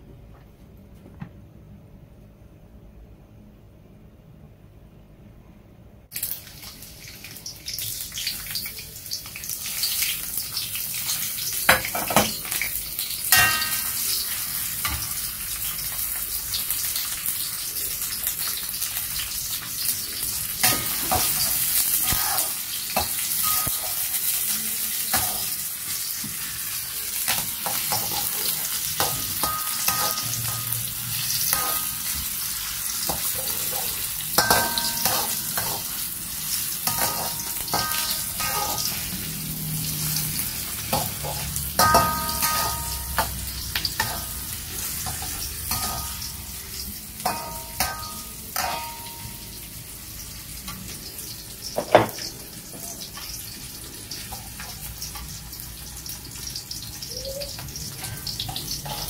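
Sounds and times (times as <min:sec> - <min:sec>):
ginger sizzling in hot oil: 0:06.1 - 0:59.0
metal spatula scraping wok: 0:20.7 - 0:22.6, 0:27.3 - 0:32.4, 0:33.0 - 0:46.6, 0:58.1 - 0:59.0.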